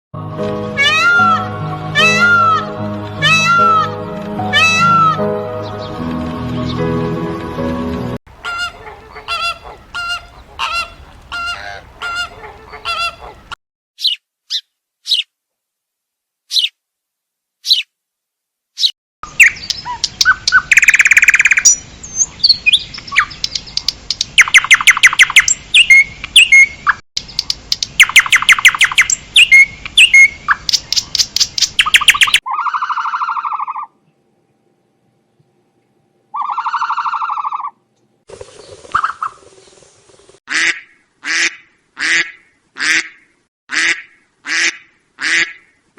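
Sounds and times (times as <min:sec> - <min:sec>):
birds chirping and squawking: 0:00.8 - 0:06.9, 0:08.3 - 0:15.3, 0:18.8 - 0:34.0, 0:36.3 - 0:39.9
bird calls: 0:08.4 - 0:15.3, 0:18.8 - 0:34.0, 0:36.3 - 0:40.3.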